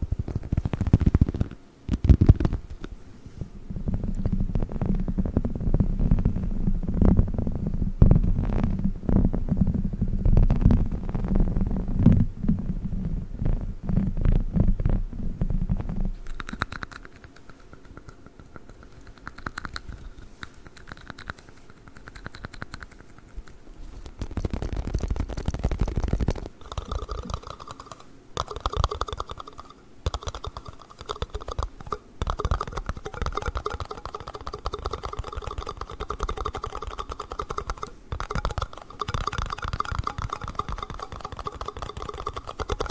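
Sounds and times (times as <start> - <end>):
clicking and scratching on plastic toy: 16.3 - 42.9.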